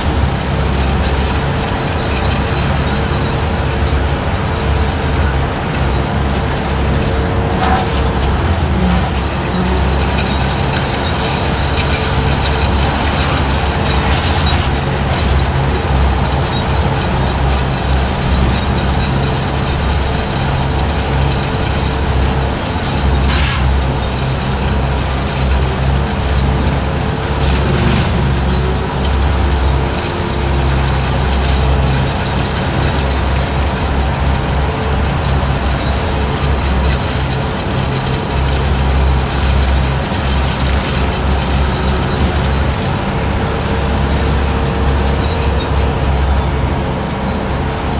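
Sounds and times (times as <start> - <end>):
sharp crackles: 0.0 - 32.6
skid steer engine droning: 0.0 - 47.9.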